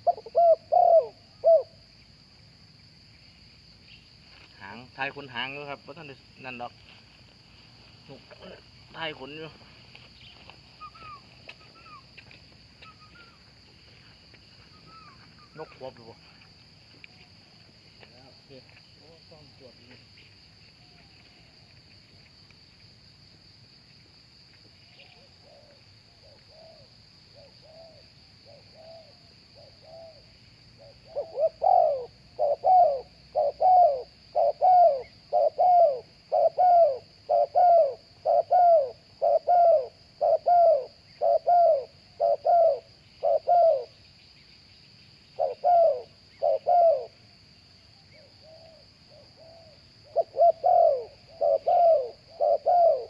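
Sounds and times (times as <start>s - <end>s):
dove cooing: 0.0s - 1.8s, 10.3s - 12.1s, 24.9s - 30.2s, 30.8s - 44.0s, 45.4s - 47.2s, 48.1s - 53.0s.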